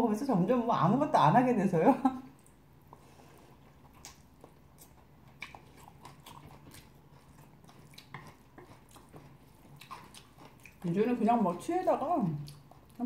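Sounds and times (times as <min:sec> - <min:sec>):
person chewing noodles: 0:02.3 - 0:13.0
wet mouth clicks and smacks: 0:03.8 - 0:06.9.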